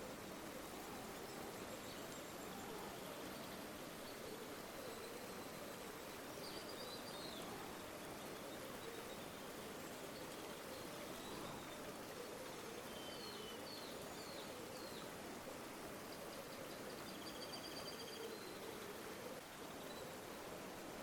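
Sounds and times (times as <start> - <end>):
river water flowing: 0.0 - 21.0.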